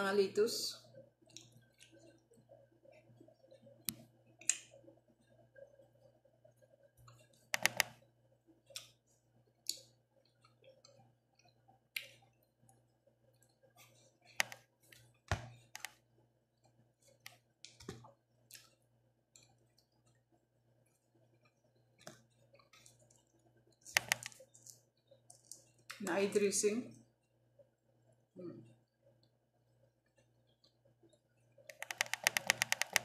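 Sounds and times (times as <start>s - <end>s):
chewing and lip-smacking: 1.2s - 3.8s, 8.6s - 14.2s, 18.4s - 26.0s
small clicks: 7.0s - 8.0s, 22.0s - 26.0s, 31.6s - 33.0s.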